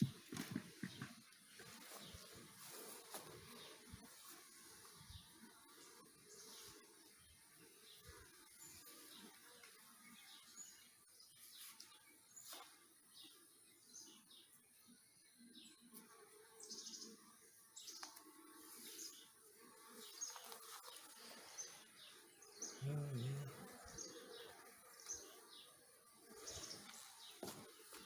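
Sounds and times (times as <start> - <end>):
faint bird chirps: 20.0 - 25.8.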